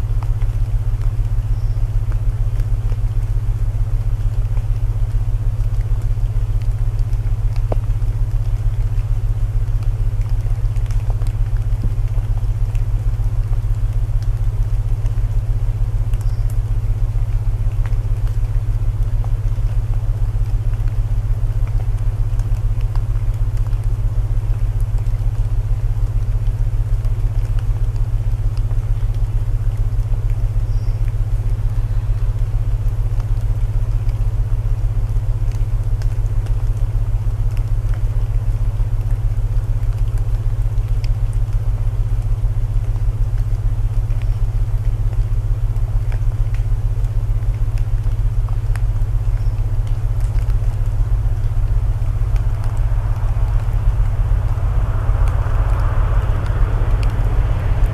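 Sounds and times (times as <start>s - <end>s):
rain hiss: 0.0s - 57.9s
low binaural tones: 51.1s - 57.9s.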